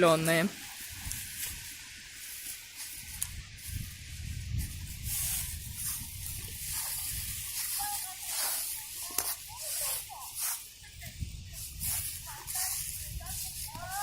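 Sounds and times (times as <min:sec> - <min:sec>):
dry leaves crunching underfoot: 0:00.0 - 0:14.0
wind rumble on microphone: 0:03.0 - 0:08.4, 0:10.8 - 0:14.0.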